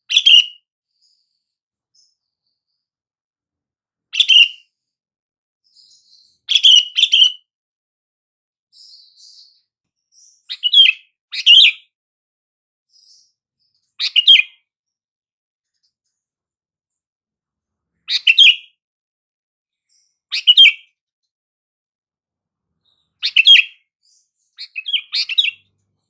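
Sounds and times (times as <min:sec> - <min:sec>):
bird chirpy calls: 0:00.0 - 0:01.2, 0:04.2 - 0:04.7, 0:05.7 - 0:07.5, 0:08.8 - 0:11.9, 0:14.0 - 0:14.6, 0:18.1 - 0:18.7, 0:19.9 - 0:20.9, 0:22.8 - 0:26.0.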